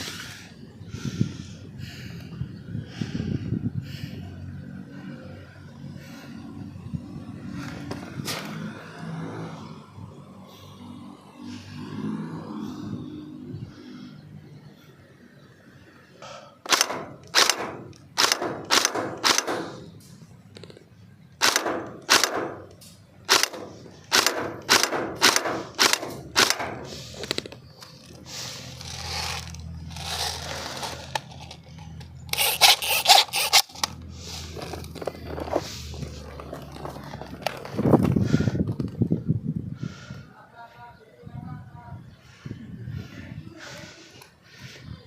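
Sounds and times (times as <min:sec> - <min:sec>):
airsoft guns firing: 0:16.7 - 0:19.8, 0:21.4 - 0:22.7, 0:23.3 - 0:26.9.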